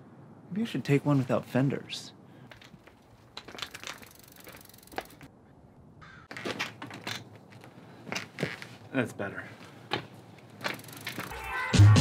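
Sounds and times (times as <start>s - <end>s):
bicycle fenders rattling and knocking: 2.5s - 5.3s, 6.3s - 8.8s, 9.9s - 11.4s.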